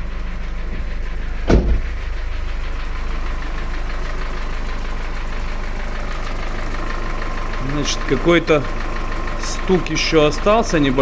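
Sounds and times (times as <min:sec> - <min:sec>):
car engine idling with lifter knock: 0:00.0 - 0:11.0
loud thump: 0:00.7 - 0:02.3.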